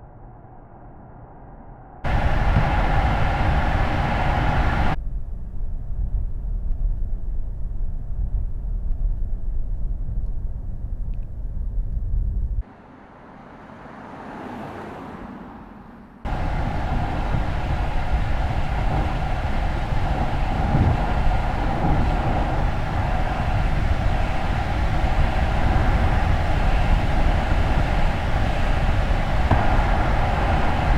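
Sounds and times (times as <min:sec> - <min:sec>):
road and tyre rumble: 0:02.1 - 0:05.0, 0:12.6 - 0:30.9.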